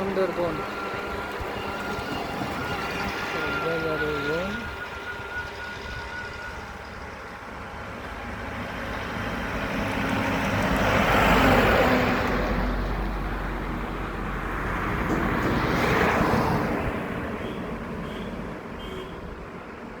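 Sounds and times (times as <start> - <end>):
vehicles passing by: 6.7 - 20.0.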